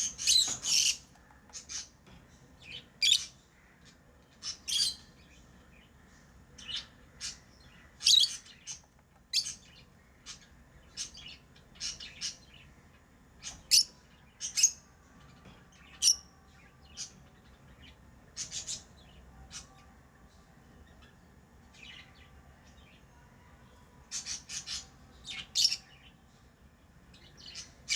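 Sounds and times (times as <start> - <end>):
lovebirds chirping: 0.0 - 3.8, 4.4 - 14.8, 24.1 - 26.2.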